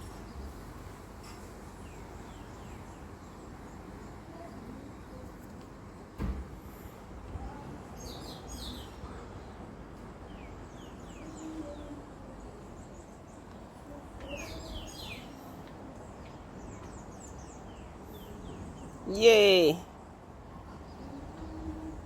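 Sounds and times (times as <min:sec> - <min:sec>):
small birds chirping: 0:01.7 - 0:05.2, 0:07.4 - 0:09.1, 0:10.3 - 0:19.8.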